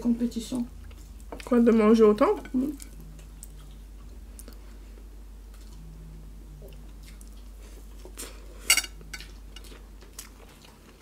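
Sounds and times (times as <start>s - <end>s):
steady low hum: 0.0s - 11.0s
mouth chewing food: 2.7s - 11.0s.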